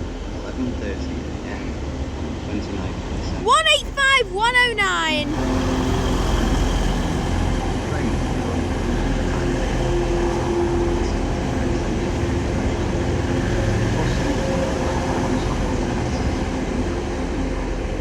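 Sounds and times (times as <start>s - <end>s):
diesel train engine drone: 0.0s - 4.0s, 5.2s - 18.0s
rail noise: 5.0s - 18.0s.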